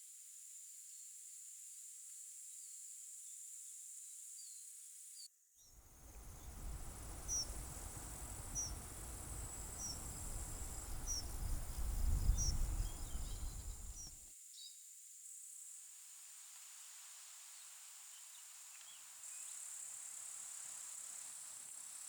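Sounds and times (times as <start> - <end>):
insects trilling: 6.0 - 14.2.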